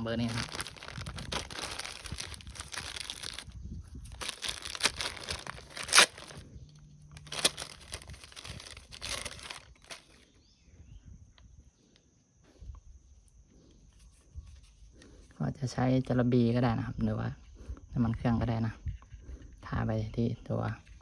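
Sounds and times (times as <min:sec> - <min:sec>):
packaging crinkling and tearing: 0:00.0 - 0:06.4, 0:07.1 - 0:10.2
sharp crack: 0:04.2 - 0:06.4.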